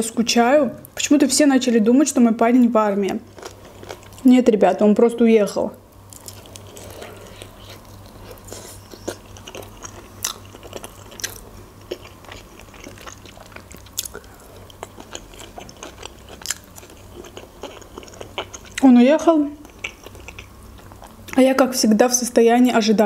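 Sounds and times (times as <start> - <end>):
person chewing food: 3.3 - 4.2, 6.1 - 18.8, 19.6 - 21.4.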